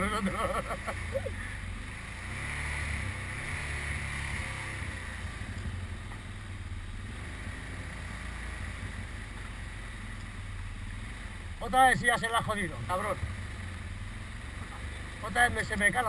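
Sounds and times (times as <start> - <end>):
small engine at low revs: 0.0 - 11.6.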